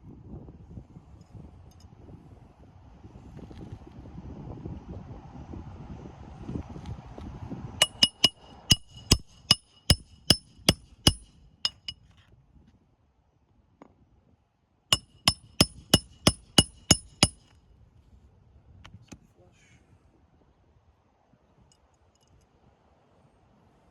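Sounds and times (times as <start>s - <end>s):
hammer ringing on steel: 7.8s - 12.0s, 15.0s - 17.4s.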